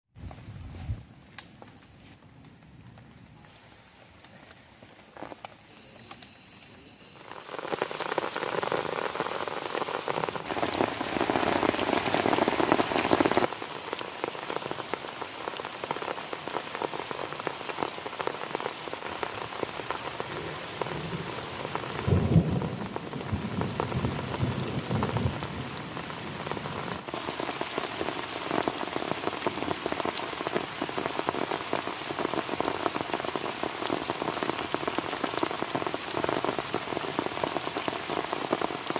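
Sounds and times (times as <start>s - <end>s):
heavy rain on a plastic tarp: 4.3s - 38.9s
thunder rumble: 21.9s - 25.8s.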